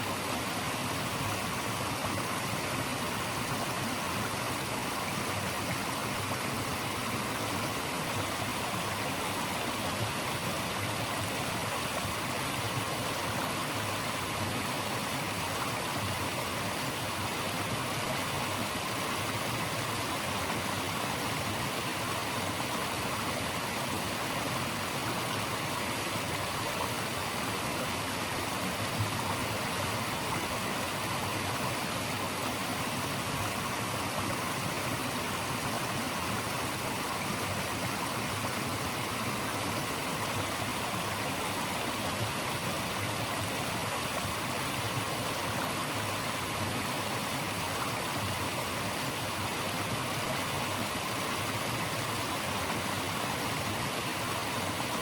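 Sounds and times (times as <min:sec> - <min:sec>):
flowing water rushing: 0:00.0 - 0:55.0.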